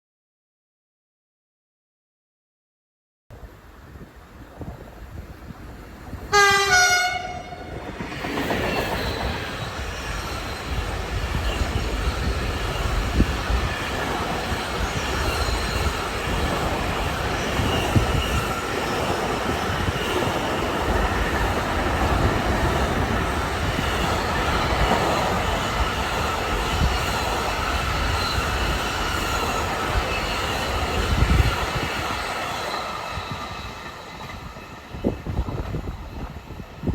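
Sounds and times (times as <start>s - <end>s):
train wheels rumbling on rail: 3.4s - 36.9s
locomotive horn: 6.3s - 7.7s.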